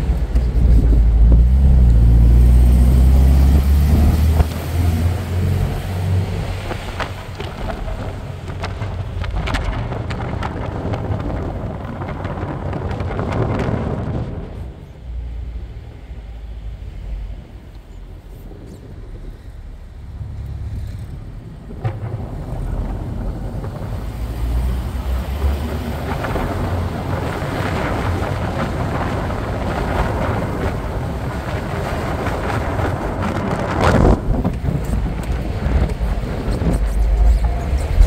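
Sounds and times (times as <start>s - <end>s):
road noise: 0.0s - 38.0s
wind noise: 0.0s - 38.0s.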